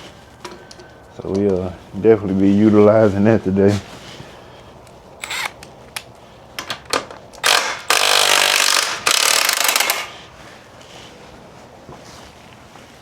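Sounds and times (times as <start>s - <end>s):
power tool running in bursts: 5.2s - 5.6s, 7.4s - 10.1s.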